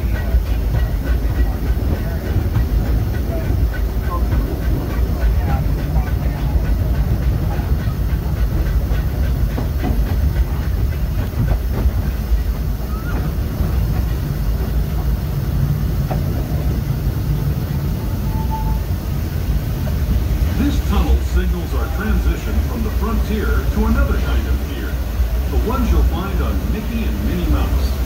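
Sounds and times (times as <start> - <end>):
train wheels rumbling on rails: 0.0 - 28.0
brief high tone: 18.1 - 18.8.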